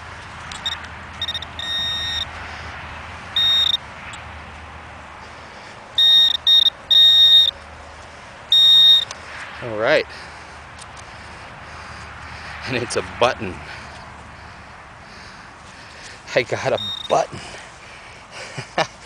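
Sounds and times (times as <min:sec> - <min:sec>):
metal detector probe buzzing: 0:00.5 - 0:02.3, 0:03.4 - 0:03.8, 0:06.0 - 0:07.5, 0:08.5 - 0:09.1, 0:16.8 - 0:17.2.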